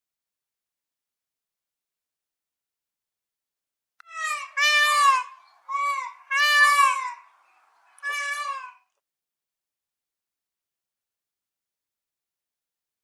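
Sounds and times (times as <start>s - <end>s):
bird calling: 4.0s - 9.0s.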